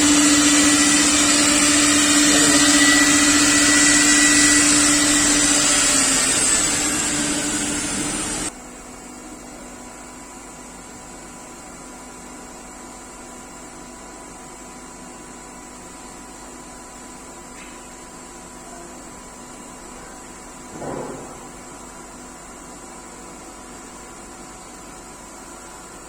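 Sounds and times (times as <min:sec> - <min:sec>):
cnc router whirring: 0:00.0 - 0:08.5
quiet machine hum: 0:00.0 - 0:09.9.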